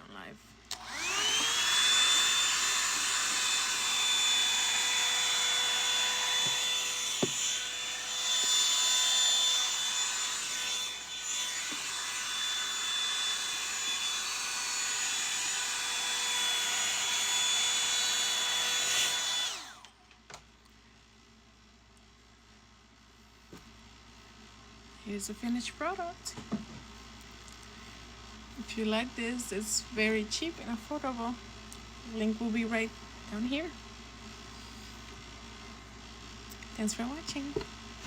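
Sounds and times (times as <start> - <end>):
hair dryer whine: 0.7 - 20.1.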